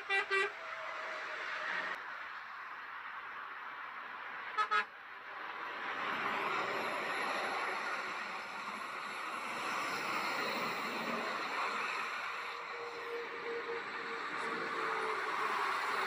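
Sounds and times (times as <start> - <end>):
vehicle horn toots: 0.0 - 0.6, 4.6 - 4.9
road traffic noise: 0.0 - 16.0.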